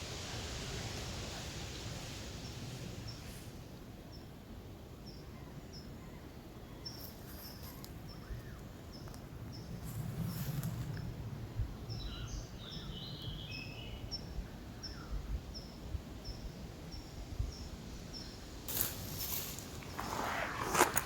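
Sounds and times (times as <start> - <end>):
rustle: 0.0 - 21.0.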